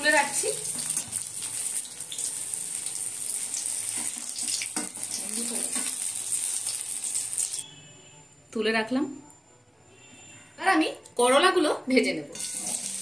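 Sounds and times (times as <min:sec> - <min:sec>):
food sizzling in hot oil: 0:00.0 - 0:07.6, 0:12.3 - 0:13.0
metal spatula scraping pan: 0:12.3 - 0:13.0.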